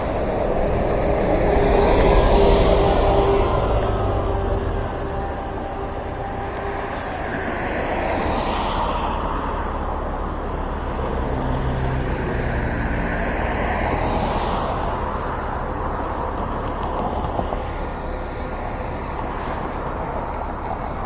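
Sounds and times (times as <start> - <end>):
car passing: 0.0 - 21.0
low engine rumble: 0.0 - 21.0
tyres hissing on wet road: 1.8 - 12.4.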